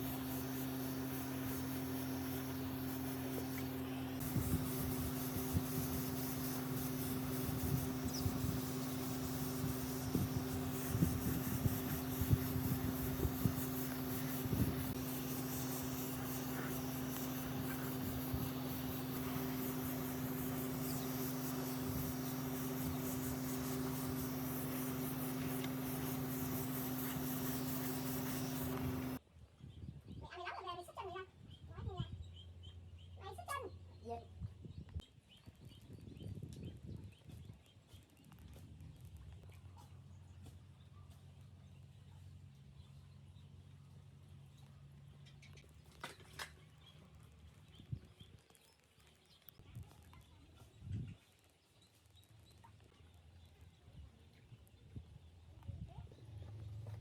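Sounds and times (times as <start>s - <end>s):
part scraping against motor: 0.0s - 29.2s
small electric motor humming: 0.0s - 29.2s.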